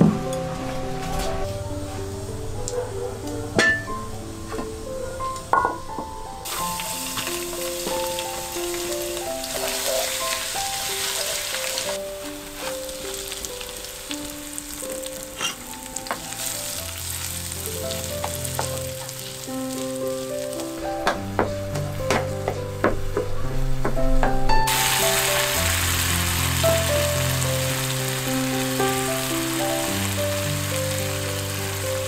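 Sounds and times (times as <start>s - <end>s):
soft background music: 0.0s - 32.0s
chillies and garlic sizzling in oil: 6.4s - 21.7s, 24.7s - 32.0s
wooden spatula scraping a pan: 11.2s - 12.9s, 15.4s - 15.6s.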